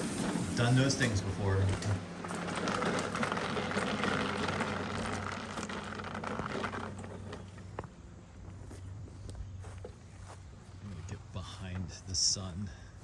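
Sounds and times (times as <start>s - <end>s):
push mower rattling on hard floor: 0.0s - 7.9s.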